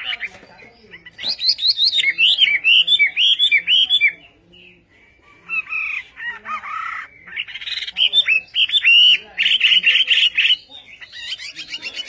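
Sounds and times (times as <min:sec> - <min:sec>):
bird singing whistled notes: 0:00.4 - 0:06.0.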